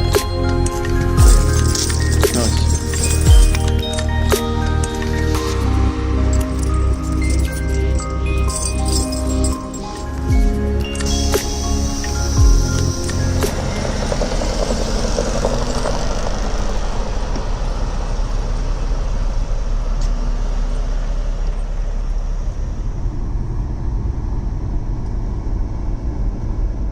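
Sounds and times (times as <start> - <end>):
truck engine rumbling: 0.0 - 26.6
steady hiss: 10.8 - 17.6.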